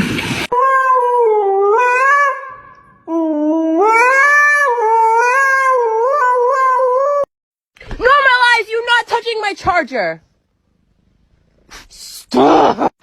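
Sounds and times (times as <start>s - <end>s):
dog howling: 3.4s - 7.3s.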